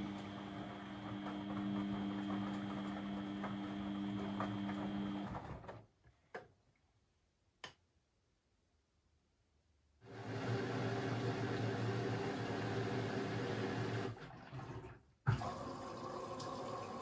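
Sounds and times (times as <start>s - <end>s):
washing machine motor humming: 0.0s - 5.7s, 10.1s - 17.0s.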